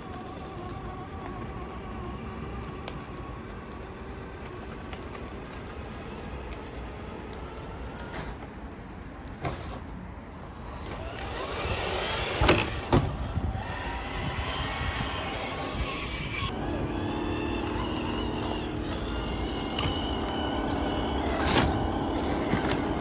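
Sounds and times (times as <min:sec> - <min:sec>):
electric motor and gears whining: 0:00.0 - 0:23.0.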